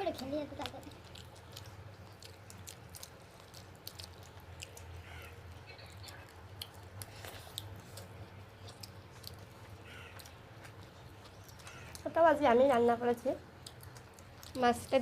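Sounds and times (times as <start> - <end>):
chewing with wet clicks and smacks: 0.0 - 15.0.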